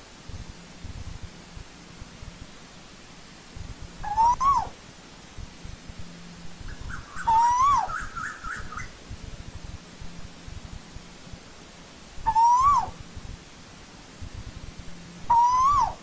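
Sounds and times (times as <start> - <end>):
bird rising call: 4.0 - 4.8, 6.8 - 8.9, 12.3 - 13.0, 15.3 - 16.0.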